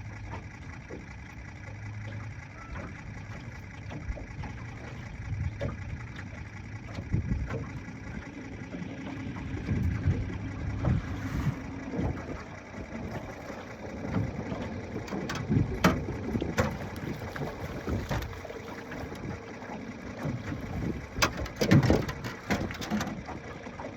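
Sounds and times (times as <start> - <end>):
water slapping against boat: 0.0 - 23.9
wind buffeting microphone: 7.0 - 8.3, 9.3 - 13.4, 15.1 - 19.5, 20.2 - 22.2.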